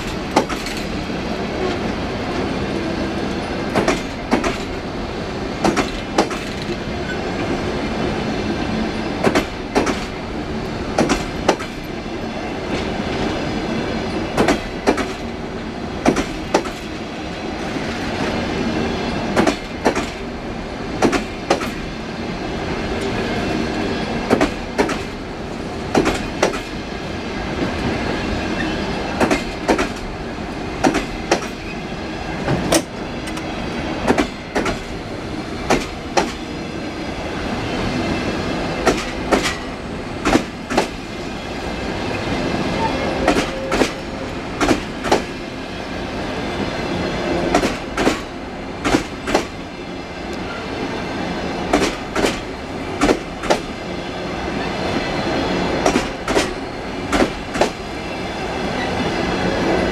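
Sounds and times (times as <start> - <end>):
train wheels clicking over rail joints: 0.0 - 2.5, 3.2 - 4.9, 5.5 - 7.6, 9.0 - 12.0, 14.1 - 17.1, 19.1 - 20.3, 20.9 - 21.9, 23.0 - 26.8, 27.5 - 36.6, 38.7 - 41.0, 43.2 - 45.5, 47.4 - 49.6, 51.6 - 53.8, 55.8 - 58.0
train rolling rumble: 0.0 - 59.9.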